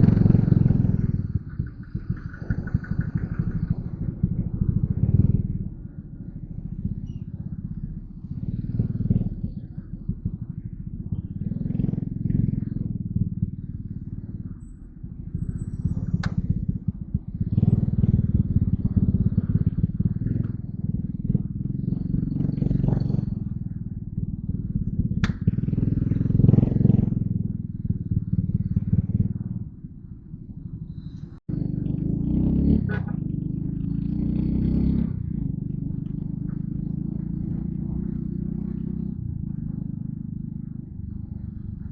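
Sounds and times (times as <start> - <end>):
motorcycle engine running: 0.0 - 41.9
sharp click: 25.2 - 25.4.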